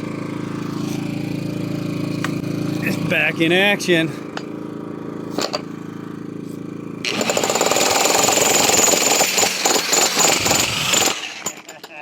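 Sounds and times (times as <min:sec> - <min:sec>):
generator engine humming: 0:00.0 - 0:12.0
electric jackhammer hammering: 0:07.0 - 0:12.0.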